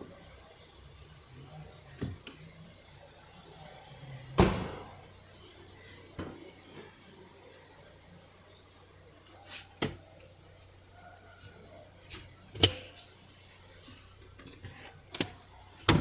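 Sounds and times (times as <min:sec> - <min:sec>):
door slamming shut: 0:04.4 - 0:04.9.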